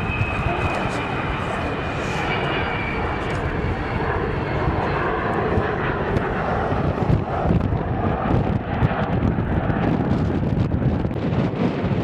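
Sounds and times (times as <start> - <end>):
faint high whine: 0.0 - 5.2
aircraft engine droning: 0.0 - 12.0.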